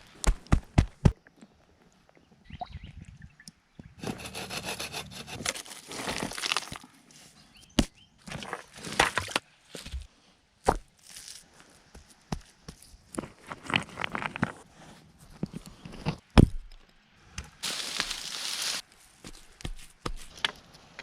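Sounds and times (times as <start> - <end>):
hand saw rasping through wood: 4.0 - 5.6.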